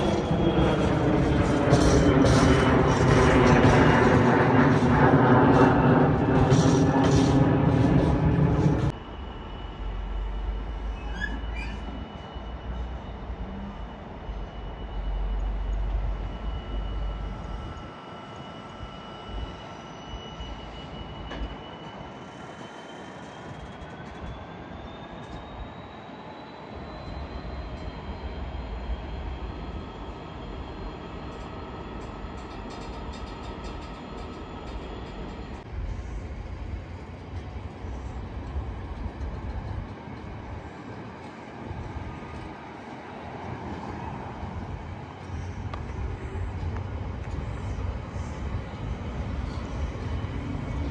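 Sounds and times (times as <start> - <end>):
high whine: 0.0 - 22.2
train rumbling on track: 0.0 - 50.9.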